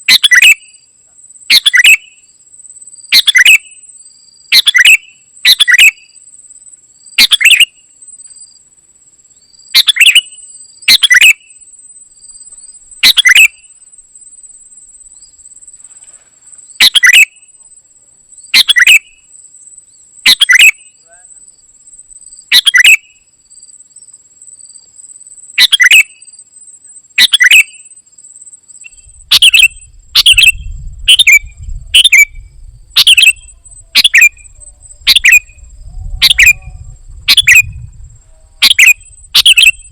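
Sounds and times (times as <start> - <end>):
bird calling: 0.0 - 0.8, 1.5 - 2.2, 3.1 - 3.8, 4.5 - 6.2, 7.2 - 7.8, 9.8 - 11.6, 12.5 - 13.8, 15.9 - 17.7, 18.4 - 19.3, 20.3 - 21.5, 22.5 - 23.2, 25.6 - 26.3, 27.2 - 28.0, 28.8 - 39.9.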